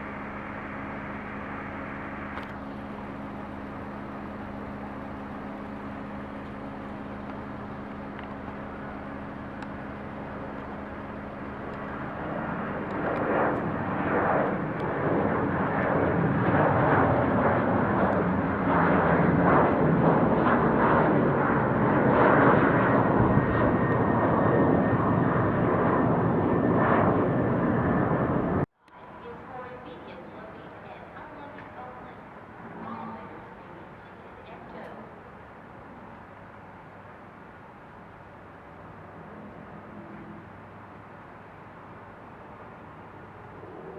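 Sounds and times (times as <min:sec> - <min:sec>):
jet airliner engine roar: 0:00.0 - 0:28.7, 0:38.6 - 0:43.9.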